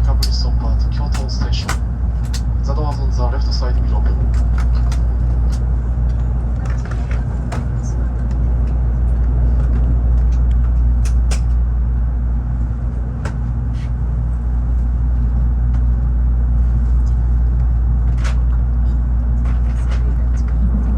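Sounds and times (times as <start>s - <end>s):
train cabin rumble: 0.0s - 20.9s.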